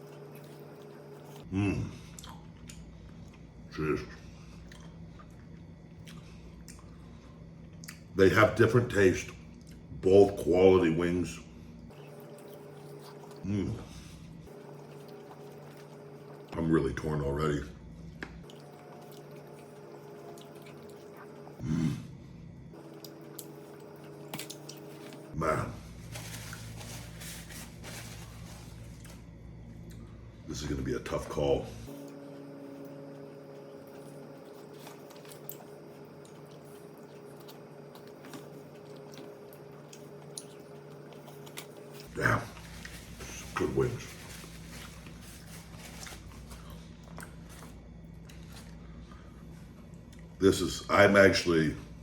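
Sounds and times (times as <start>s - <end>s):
man chewing: 0.0s - 3.6s, 4.4s - 8.1s, 11.9s - 16.6s, 18.3s - 22.0s, 22.7s - 25.4s, 32.7s - 43.6s, 44.4s - 50.4s
steady low hum: 0.0s - 52.0s.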